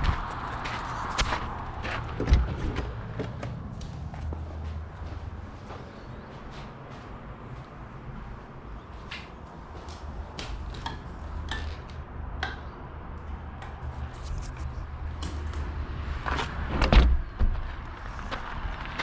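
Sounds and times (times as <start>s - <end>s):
rattling knocks over rough ground: 1.2s - 3.6s.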